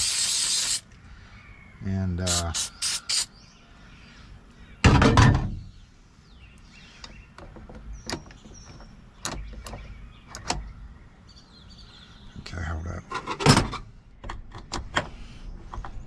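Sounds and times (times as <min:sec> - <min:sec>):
sharp clicks and small knocks: 0:13.2 - 0:16.0.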